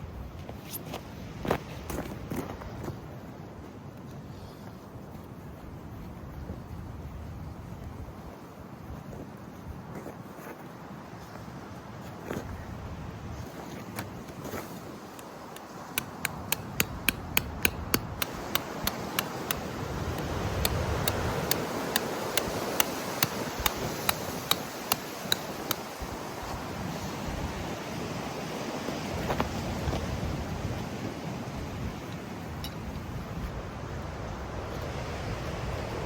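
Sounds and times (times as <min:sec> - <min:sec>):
strong wind gusting: 0:14.7 - 0:36.0
rapid sharp taps: 0:15.1 - 0:25.9.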